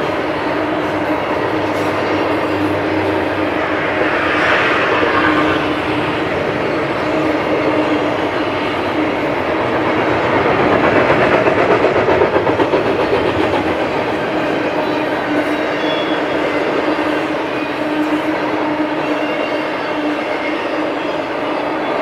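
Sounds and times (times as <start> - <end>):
freight train wheels rumbling: 0.0 - 22.0
low hum: 2.0 - 8.3
rhythmic clickety-clack: 6.2 - 22.0.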